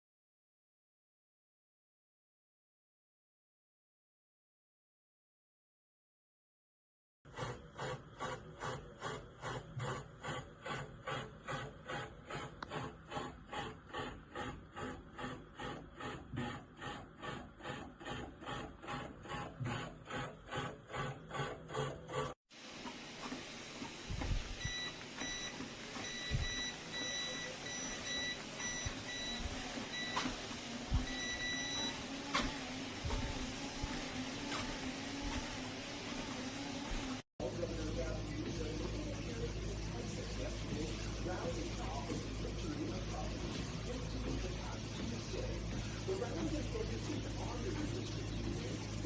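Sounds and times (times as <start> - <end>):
treadmill running: 7.3 - 37.2
steady hum: 22.6 - 49.0.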